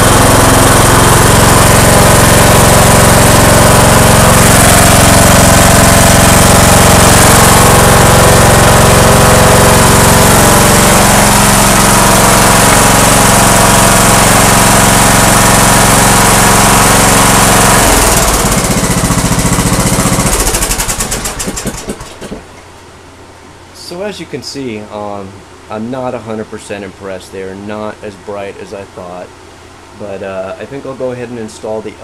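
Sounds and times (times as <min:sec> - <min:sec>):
lawn tractor engine running: 0:00.0 - 0:22.7.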